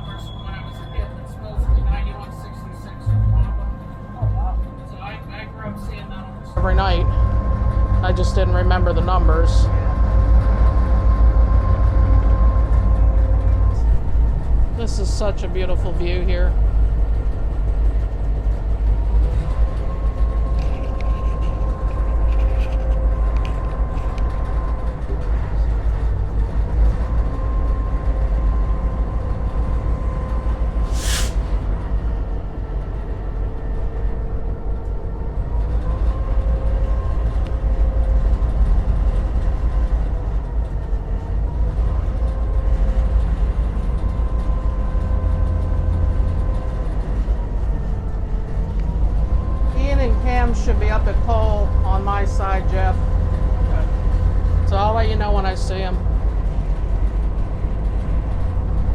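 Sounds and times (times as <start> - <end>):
diesel locomotive rumble and whine: 0.0 - 58.9
brief sharp sound: 30.9 - 31.6.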